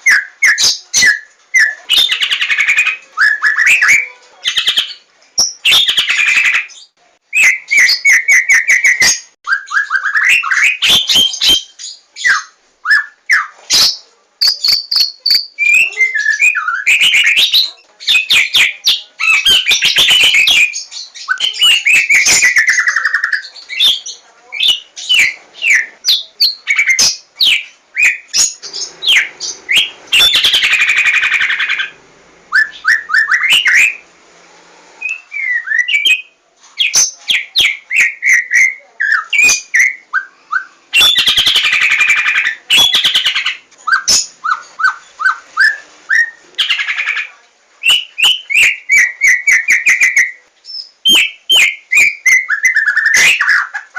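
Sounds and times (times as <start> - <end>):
harsh buzzy bird chatter: 19.2 - 32.0
bird singing clicks and whistles: 47.8 - 50.1.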